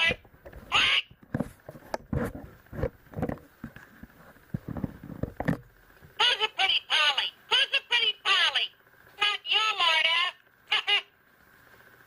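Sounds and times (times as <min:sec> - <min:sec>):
talking toy parrot squawky voice: 0:00.0 - 0:01.2, 0:06.2 - 0:11.2.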